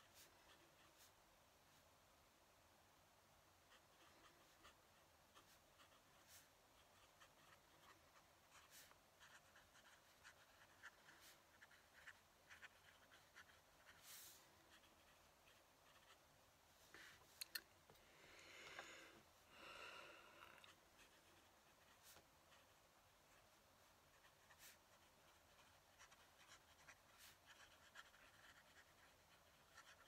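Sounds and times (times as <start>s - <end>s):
pen nib scratching on paper: 3.7s - 16.2s, 20.6s - 30.0s.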